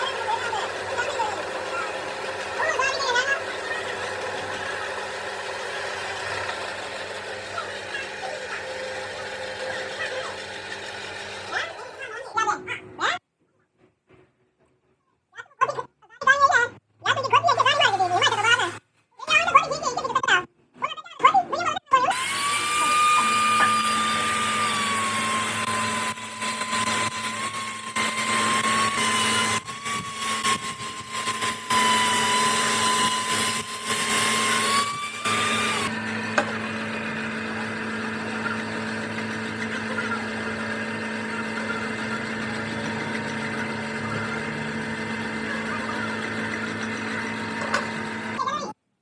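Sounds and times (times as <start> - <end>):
electric power tool whining: 0.0 - 12.2, 22.1 - 48.4
machine hum: 0.0 - 12.2, 22.2 - 48.4.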